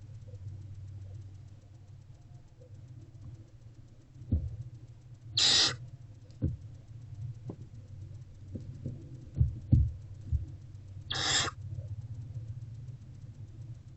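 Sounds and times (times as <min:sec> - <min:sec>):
owlet hissing screech: 0:05.4 - 0:05.8, 0:11.1 - 0:11.6.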